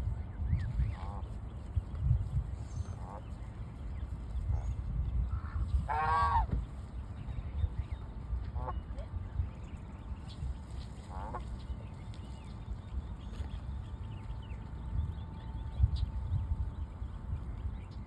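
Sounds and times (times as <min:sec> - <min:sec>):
steady low rumble: 0:00.0 - 0:18.0
bird honking: 0:02.9 - 0:03.4, 0:05.4 - 0:06.6, 0:11.0 - 0:11.5.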